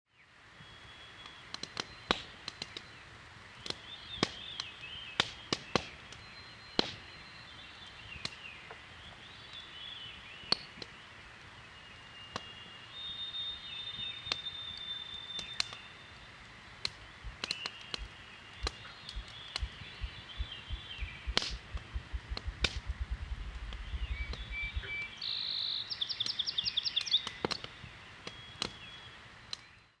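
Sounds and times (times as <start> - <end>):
songbirds singing: 0.1 - 30.0
campfire crackling and popping: 1.0 - 30.0
low deep thumps: 19.2 - 24.9.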